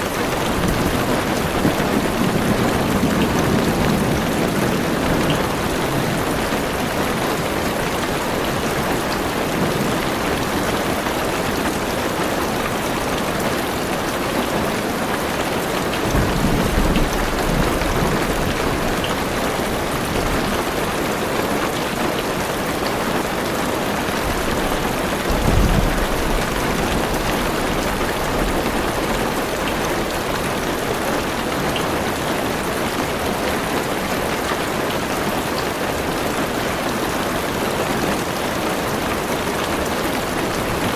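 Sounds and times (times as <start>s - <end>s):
heavy rain on car roof: 0.0s - 40.9s
low rumbles of thunder: 0.4s - 7.4s, 16.0s - 20.8s, 24.2s - 30.4s.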